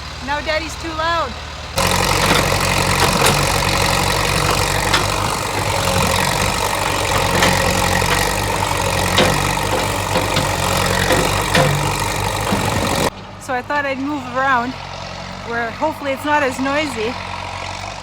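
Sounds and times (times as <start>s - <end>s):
tractor engine running: 0.0s - 13.6s
short sharp knocks: 1.8s - 13.1s.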